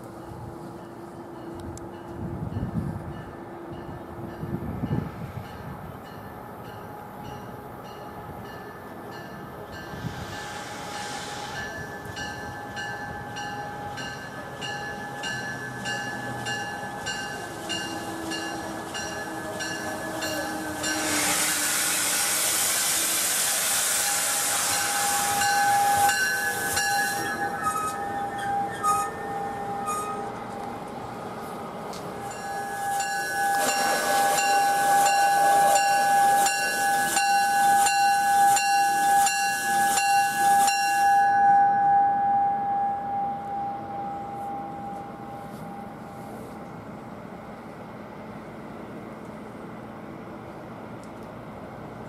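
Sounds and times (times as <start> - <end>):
train pulling into station: 0.0 - 52.0
loud hiss: 9.4 - 13.9, 16.9 - 28.0, 32.1 - 41.3.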